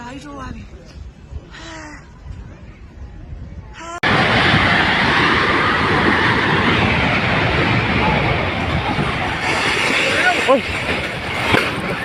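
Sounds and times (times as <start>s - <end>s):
loud steady rushing noise: 4.0s - 12.0s.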